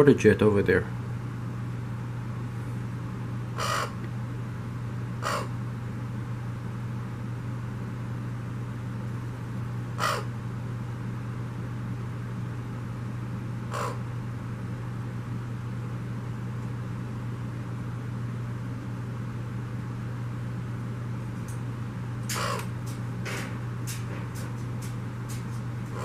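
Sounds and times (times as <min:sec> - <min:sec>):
harsh bird calls: 0:03.6 - 0:04.0, 0:05.2 - 0:05.6, 0:10.0 - 0:10.3, 0:13.7 - 0:14.1, 0:22.3 - 0:22.8, 0:25.7 - 0:26.0
water pump humming: 0:21.2 - 0:26.0.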